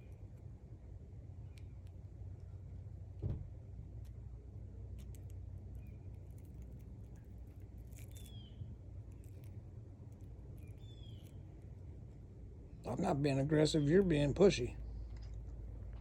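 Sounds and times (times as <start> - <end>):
steady low rumble: 0.0 - 16.0
thump: 3.2 - 3.5.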